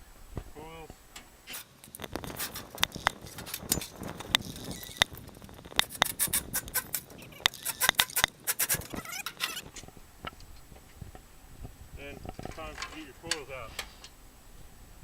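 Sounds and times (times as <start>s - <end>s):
sheet metal clanking and rattling: 12.2s - 14.0s.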